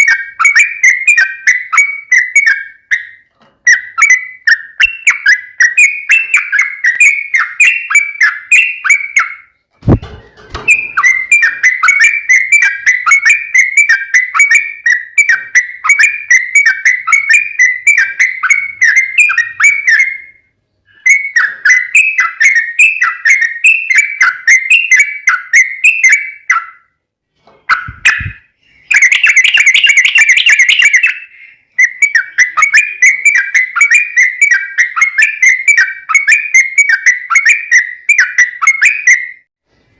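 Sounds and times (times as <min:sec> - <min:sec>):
bird singing whistled notes: 0:00.0 - 0:27.0, 0:27.7 - 0:39.5.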